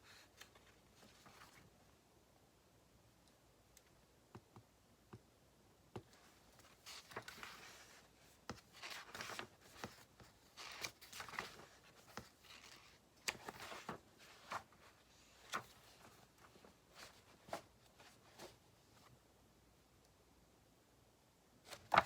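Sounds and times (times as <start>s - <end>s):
paper rustling: 6.2s - 18.6s, 21.7s - 22.0s.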